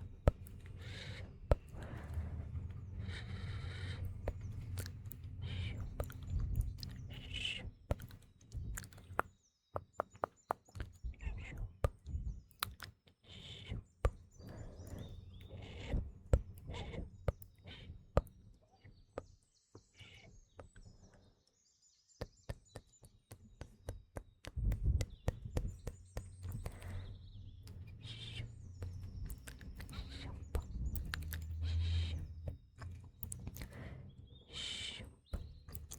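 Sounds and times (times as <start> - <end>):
birds chirping: 0.0 - 21.5, 24.8 - 35.9
wet mouth clicks and smacks: 0.1 - 2.3, 4.0 - 9.3, 10.0 - 13.0, 24.7 - 33.9, 35.3 - 35.9.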